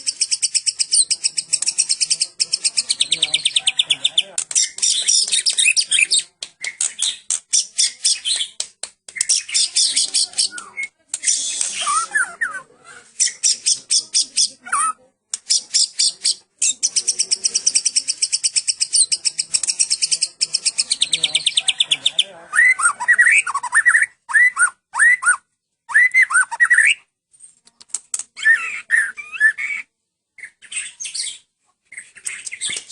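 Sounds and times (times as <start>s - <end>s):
bird rapid high chips: 0.0s - 3.9s, 11.2s - 12.5s, 13.2s - 21.7s
bird whistled phrases: 9.2s - 20.0s, 22.6s - 27.0s, 28.4s - 31.4s.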